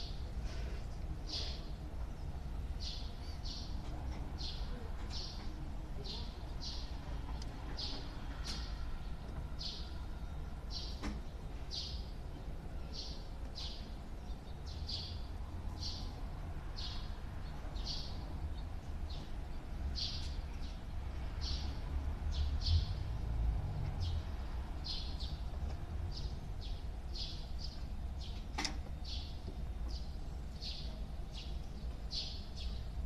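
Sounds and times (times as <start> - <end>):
bird chirping: 1.3 - 3.8, 16.8 - 19.3, 20.0 - 20.8, 26.1 - 33.0.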